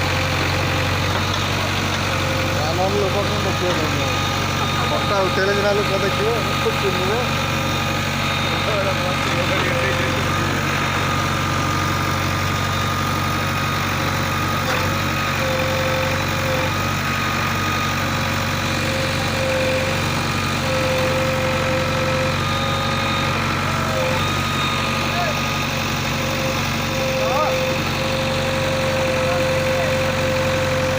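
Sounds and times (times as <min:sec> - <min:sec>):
heavy diesel engine running: 0:00.0 - 0:30.9
thin whine: 0:02.1 - 0:20.0.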